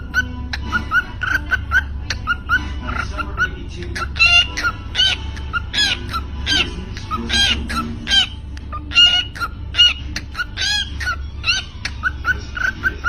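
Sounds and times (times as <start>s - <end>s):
cockatiel calling: 0.0s - 13.0s.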